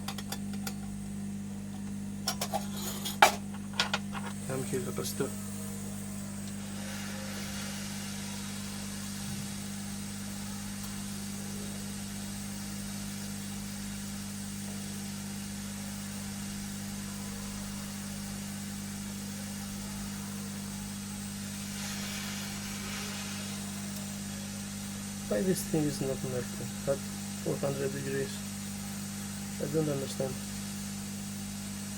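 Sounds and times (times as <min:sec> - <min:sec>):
hot air gun blowing: 0:05.1 - 0:11.1, 0:20.6 - 0:25.5.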